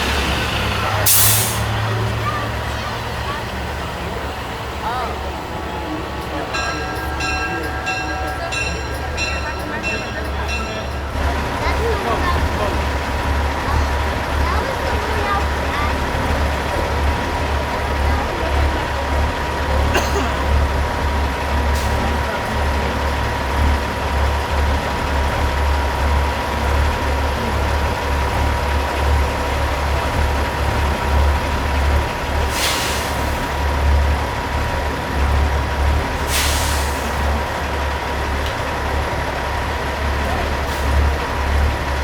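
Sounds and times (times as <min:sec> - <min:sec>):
diesel truck engines rumbling: 0:00.0 - 0:42.0
air brake hisses: 0:01.0 - 0:01.9, 0:32.4 - 0:33.5, 0:36.2 - 0:37.3.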